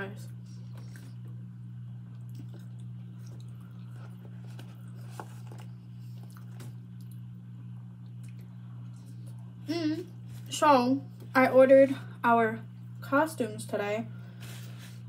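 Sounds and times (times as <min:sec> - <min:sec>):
steady low hum: 0:00.0 - 0:15.0
person chewing fries: 0:00.6 - 0:09.6.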